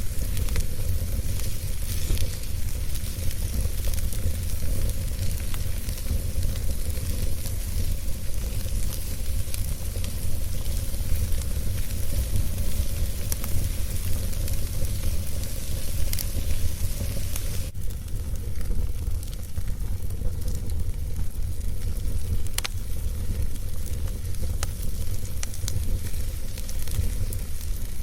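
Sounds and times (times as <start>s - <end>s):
fire hissing crackle: 0.0s - 28.0s
low fire rumble: 0.0s - 28.0s.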